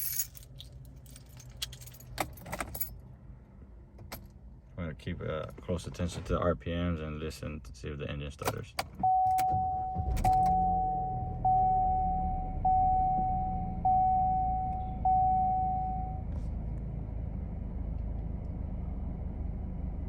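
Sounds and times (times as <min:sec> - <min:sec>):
car engine starting and idling: 0:00.0 - 0:20.0
dashboard warning chime: 0:09.0 - 0:16.3.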